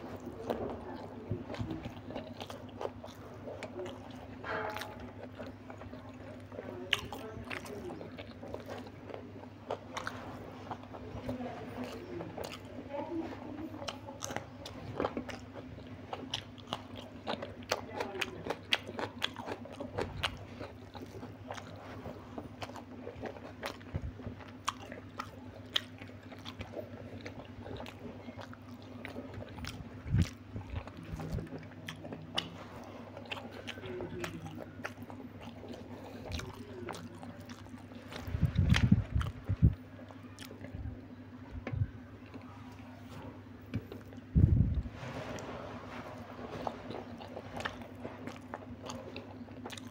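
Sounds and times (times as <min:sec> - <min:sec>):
steady low hum: 0:00.0 - 0:49.9
person biting and chewing: 0:13.8 - 0:40.7, 0:46.4 - 0:49.9
wet mouth clicks and crunches: 0:22.4 - 0:39.8.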